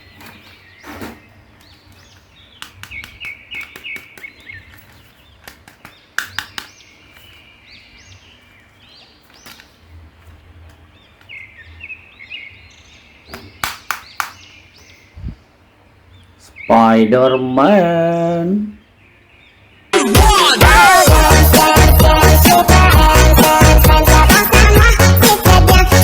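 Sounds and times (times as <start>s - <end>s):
birds chirping: 0.0s - 26.0s
sharp clicks and taps: 2.6s - 6.8s.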